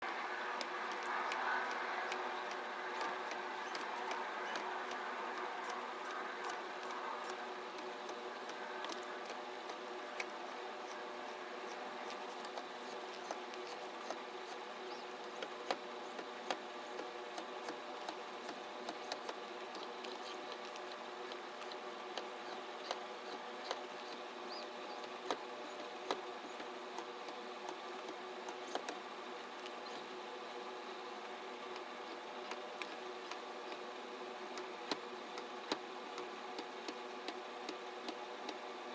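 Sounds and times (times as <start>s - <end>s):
robotic hand motors whining: 2.4s - 7.4s, 11.6s - 19.4s.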